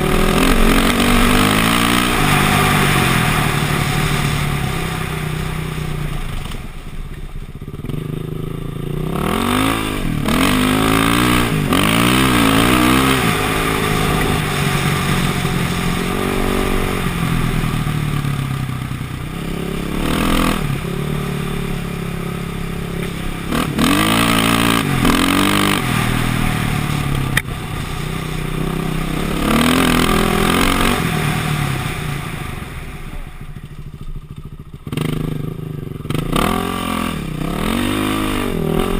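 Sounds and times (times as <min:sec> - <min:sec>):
dirt bike engine revving: 0:00.0 - 0:06.8, 0:07.7 - 0:38.9.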